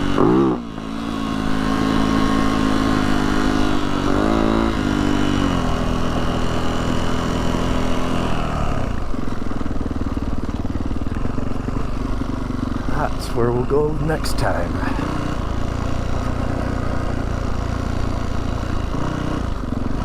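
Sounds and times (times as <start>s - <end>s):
dirt bike engine running: 0.0s - 20.0s.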